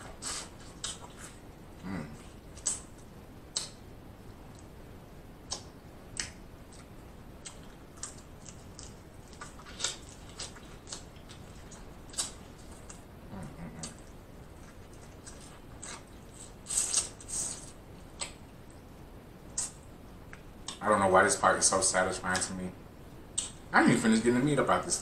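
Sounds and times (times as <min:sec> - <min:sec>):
wet mouth clicks and smacks: 0:02.6 - 0:02.8, 0:03.5 - 0:03.8, 0:05.5 - 0:13.0, 0:19.5 - 0:20.8.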